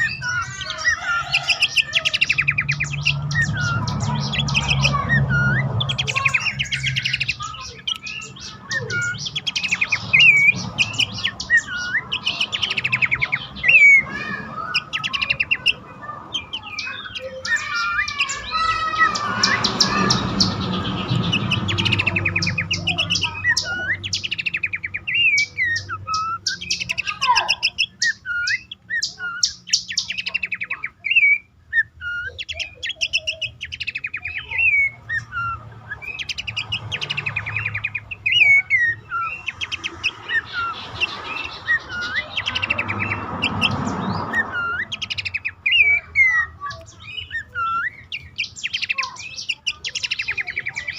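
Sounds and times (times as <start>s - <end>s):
bird chirping and chattering: 0.0s - 50.9s.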